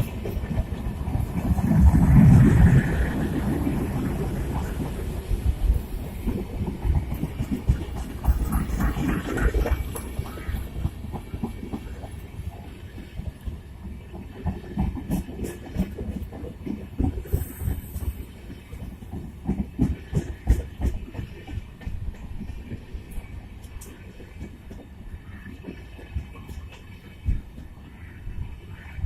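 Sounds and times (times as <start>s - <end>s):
wheels clicking over rail joints: 0.0s - 27.9s
train rumble: 0.0s - 29.0s.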